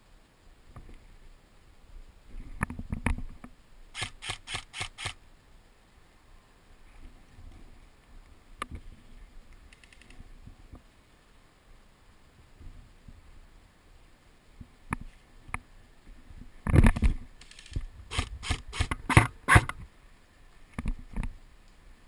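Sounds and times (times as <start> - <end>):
faint clicks and thuds: 2.4 - 3.6, 20.7 - 21.4.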